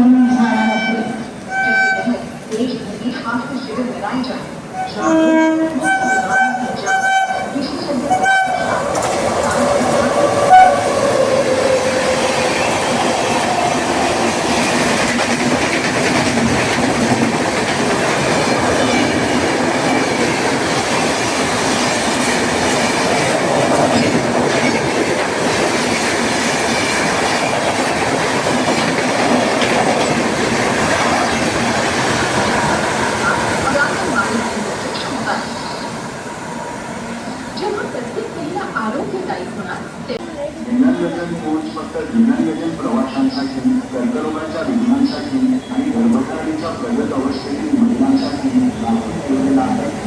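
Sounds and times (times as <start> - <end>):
train horn sliding down: 4.8 - 7.4, 10.5 - 10.9
train wheels clattering: 5.9 - 35.5.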